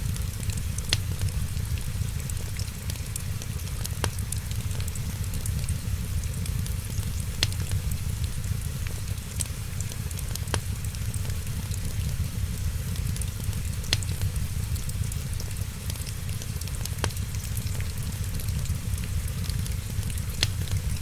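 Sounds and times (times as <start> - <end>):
fire popping: 0.0 - 21.0
wood fire crackling: 0.0 - 21.0
steady low rumble: 17.1 - 21.0.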